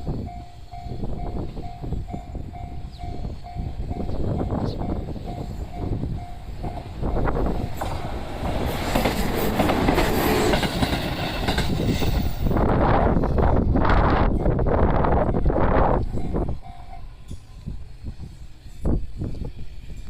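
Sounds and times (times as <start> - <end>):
electric train passing: 0.0 - 20.0
wind buffeting microphone: 0.0 - 20.0
level crossing warning bell: 0.2 - 7.8, 16.1 - 17.5.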